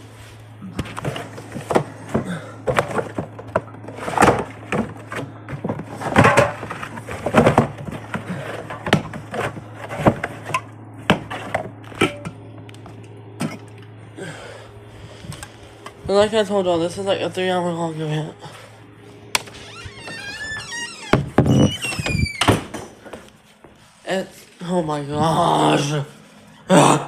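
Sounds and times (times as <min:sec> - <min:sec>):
steady low hum: 0:00.0 - 0:27.0
objects being handled and set down: 0:00.3 - 0:13.9.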